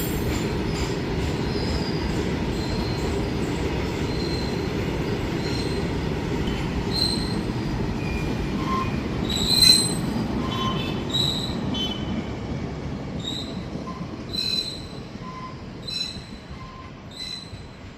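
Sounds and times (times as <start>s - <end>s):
train rumbling on rails: 0.0s - 17.9s
wheel squeals: 6.5s - 11.6s, 13.2s - 17.7s.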